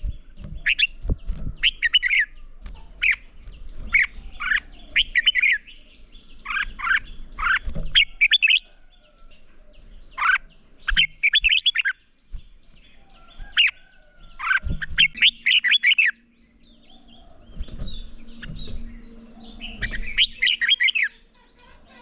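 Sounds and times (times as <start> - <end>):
bird chirping song: 0.0 - 22.0
faint hum: 12.3 - 22.0
low rumble: 16.2 - 20.6.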